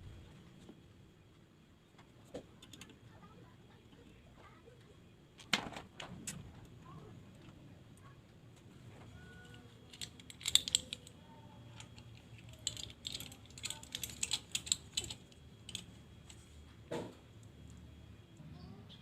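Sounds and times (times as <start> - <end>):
metal parts clicking and clinking: 9.2 - 16.4.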